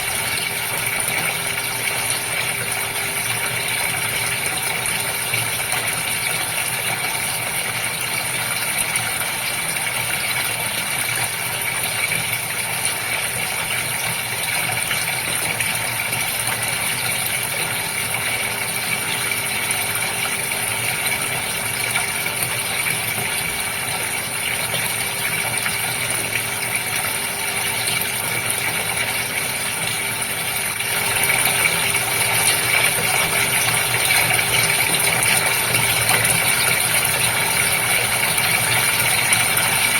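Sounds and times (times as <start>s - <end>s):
aquarium pump motor hum: 0.0s - 39.9s
water moving in aquarium: 0.0s - 39.9s.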